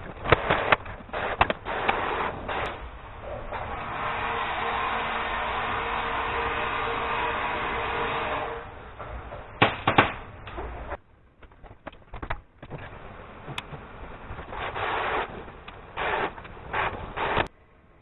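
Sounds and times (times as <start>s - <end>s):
steady noise: 0.0s - 18.0s
scraping rustles: 9.0s - 17.5s.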